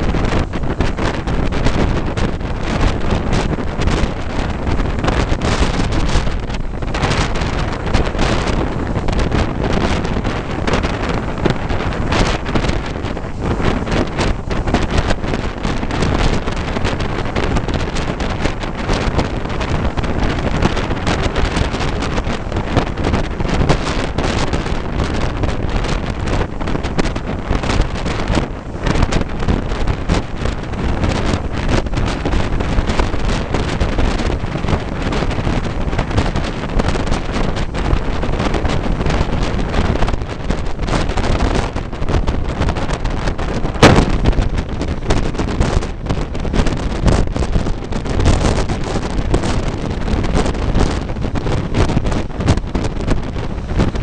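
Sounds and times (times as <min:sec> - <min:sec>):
wind buffeting microphone: 0:00.0 - 0:54.0
sharp crack: 0:43.4 - 0:44.8.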